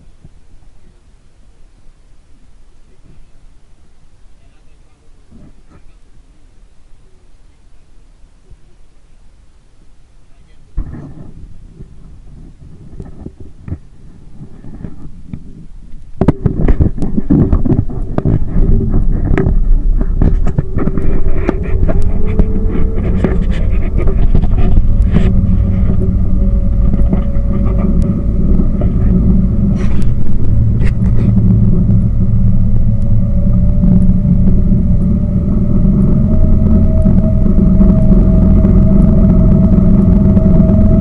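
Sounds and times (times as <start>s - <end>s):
boat engine rumbling: 0.0s - 41.0s
sharp crackles: 10.3s - 41.0s.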